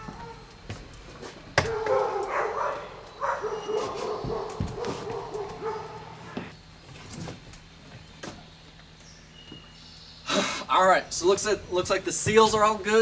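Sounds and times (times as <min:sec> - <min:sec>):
dog whining and yipping: 0:01.6 - 0:06.5.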